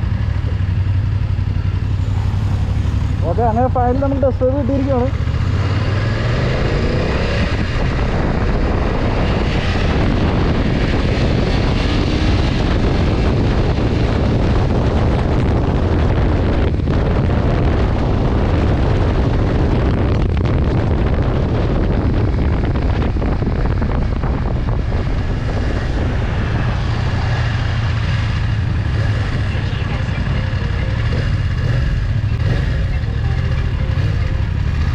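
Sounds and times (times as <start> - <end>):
motorcycle engine running: 0.0 - 34.9
wind noise on microphone: 0.0 - 34.9.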